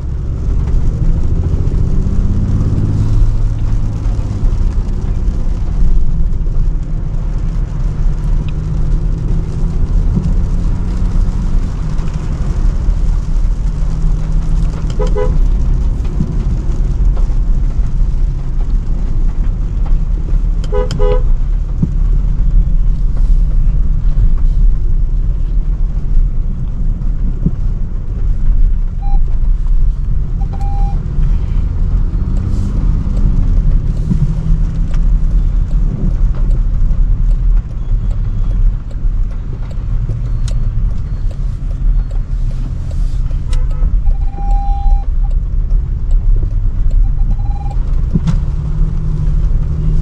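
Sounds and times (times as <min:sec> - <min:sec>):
car engine rumble: 0:00.0 - 0:50.0
car horn honking: 0:14.9 - 0:15.4, 0:20.7 - 0:21.3, 0:30.4 - 0:31.0, 0:43.5 - 0:45.0
short high horn beeps: 0:30.4 - 0:31.0, 0:43.5 - 0:45.0.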